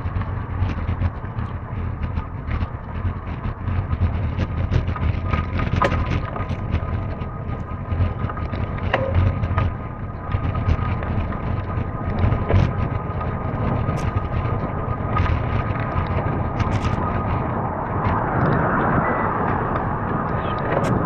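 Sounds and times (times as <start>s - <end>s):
bike rumbling and rattling: 0.0s - 21.0s
wind buffeting microphone: 0.0s - 21.0s
clicks and knocks: 5.6s - 9.9s.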